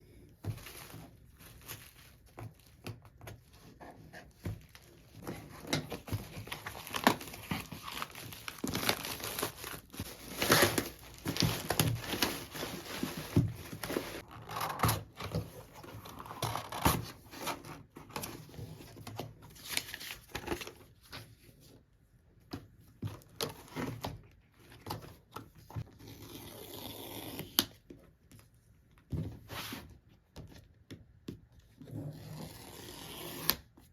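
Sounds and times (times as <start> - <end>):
packaging tearing and crinkling: 6.4 - 13.2.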